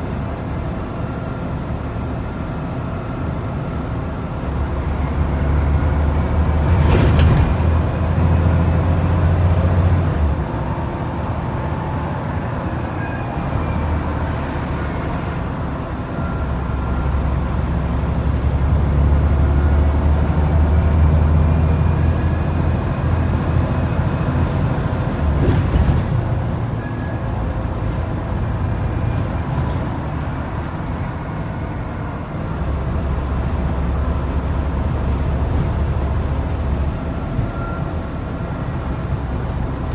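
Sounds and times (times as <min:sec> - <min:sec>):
diesel bus engine under load: 0:00.0 - 0:39.9
air brake hiss: 0:14.2 - 0:15.5.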